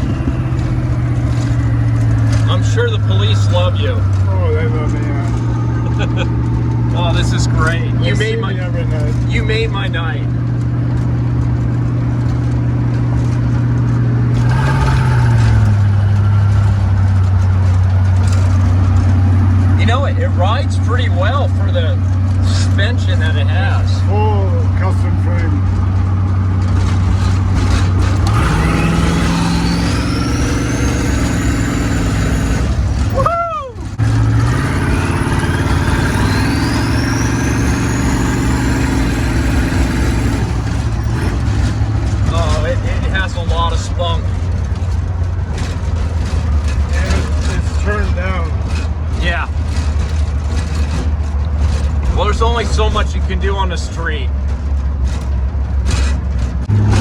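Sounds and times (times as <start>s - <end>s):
car engine running: 0.0s - 57.0s
turbo whine: 26.9s - 33.2s, 33.8s - 43.3s.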